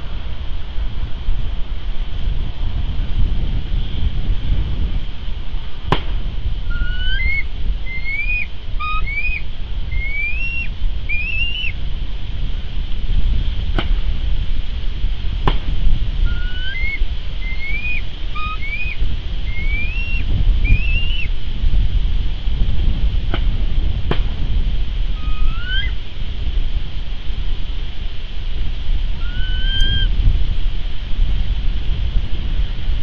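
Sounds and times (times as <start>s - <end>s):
steady low rumble: 0.0s - 33.0s
bird singing whistled notes: 6.7s - 11.8s, 16.2s - 21.3s, 25.2s - 26.0s, 29.2s - 30.1s.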